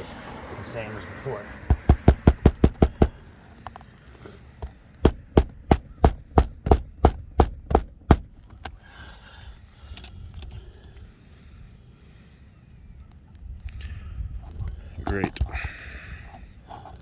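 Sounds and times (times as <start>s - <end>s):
hammer blows: 1.7s - 3.2s, 5.0s - 8.4s.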